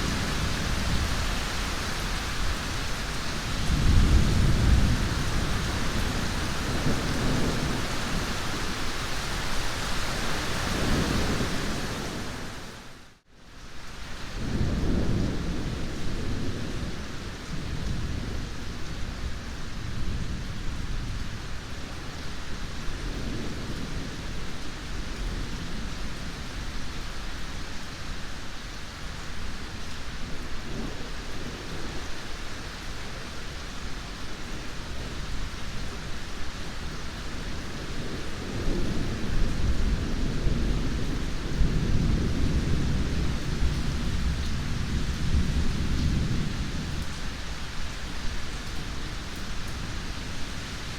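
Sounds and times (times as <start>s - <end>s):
rolling thunder: 0.0s - 8.8s
heavy rain: 0.0s - 50.9s.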